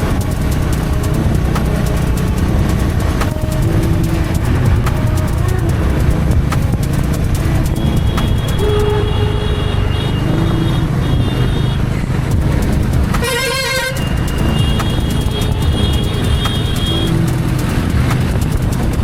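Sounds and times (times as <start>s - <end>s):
motorcycle engine running: 0.0s - 11.6s, 12.2s - 19.0s
thin horn-like traffic tones: 0.0s - 18.4s
vehicle horn honk: 7.8s - 12.0s, 13.2s - 17.2s.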